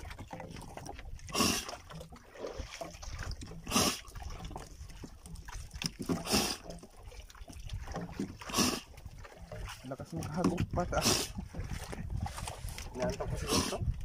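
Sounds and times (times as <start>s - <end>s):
squid blowing water through siphon: 1.3s - 2.7s, 3.6s - 4.2s, 6.2s - 6.7s, 8.4s - 8.9s.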